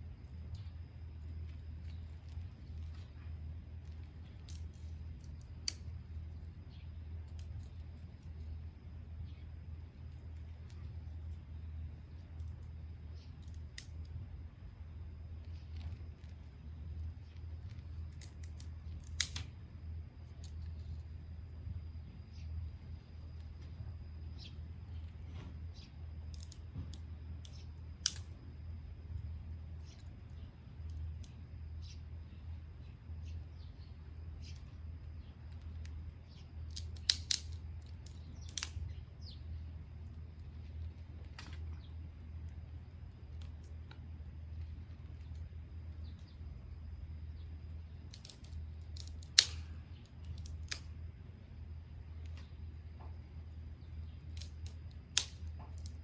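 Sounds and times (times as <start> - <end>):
wood fire crackling: 0.0 - 56.0
sharp pops: 54.4 - 56.0.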